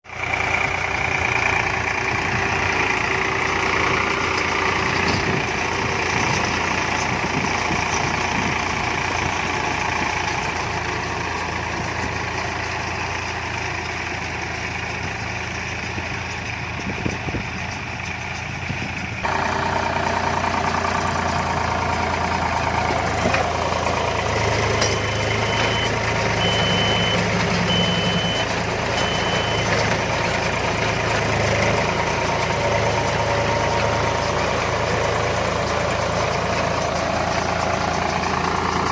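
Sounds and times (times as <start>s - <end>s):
tractor diesel engine running: 0.0s - 38.9s
high electronic beep: 25.0s - 29.7s.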